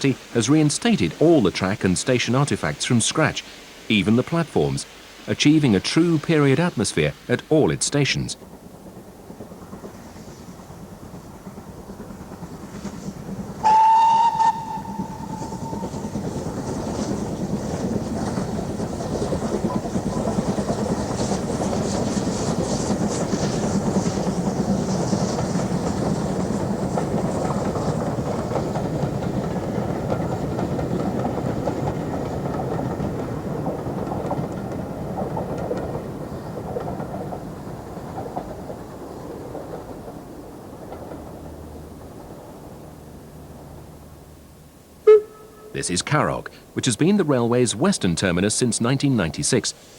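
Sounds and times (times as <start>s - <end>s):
train rumbling past: 0.0s - 49.9s
steam locomotive whistle: 13.6s - 16.5s, 45.0s - 47.0s.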